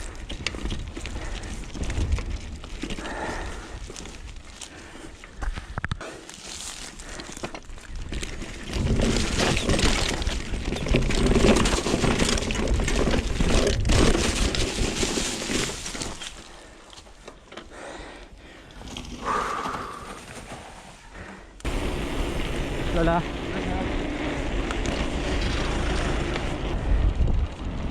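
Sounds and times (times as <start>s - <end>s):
tyres crunching over stones: 0.0s - 17.6s
bike rattling: 0.0s - 27.9s
wind on microphone: 24.8s - 27.9s.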